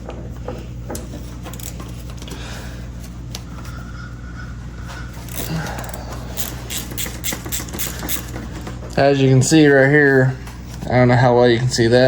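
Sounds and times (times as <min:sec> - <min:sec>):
steady low hum: 0:00.0 - 0:12.0
metallic clicks of hand tools: 0:05.3 - 0:08.4.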